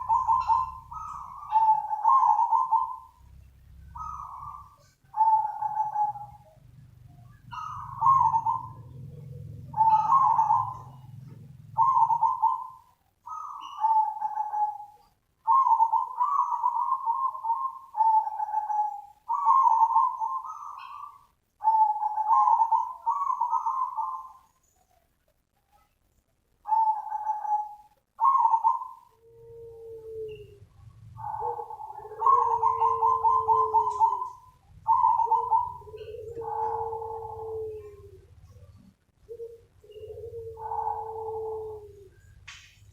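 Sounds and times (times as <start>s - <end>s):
dove cooing: 0.0s - 25.0s, 26.6s - 42.9s
faint low hum: 0.0s - 42.9s.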